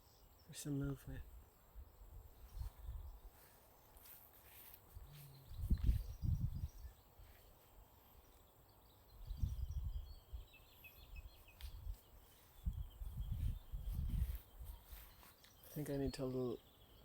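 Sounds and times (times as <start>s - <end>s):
bird chirping faintly: 0.0s - 17.0s
low rumbling microphone bumps: 5.0s - 6.9s, 9.2s - 10.4s, 12.6s - 14.8s.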